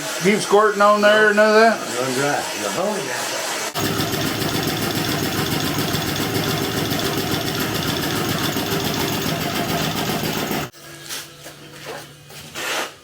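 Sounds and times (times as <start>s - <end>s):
boring machine cutting metal: 3.8s - 10.7s.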